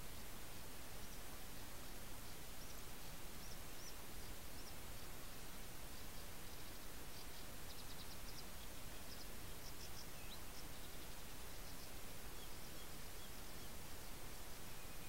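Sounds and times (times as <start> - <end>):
microphone hiss: 0.0 - 15.0
faint high bird chirps: 5.9 - 15.0.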